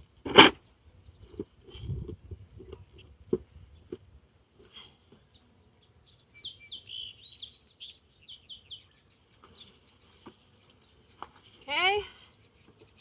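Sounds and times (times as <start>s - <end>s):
songbird chirping: 2.9s - 13.0s.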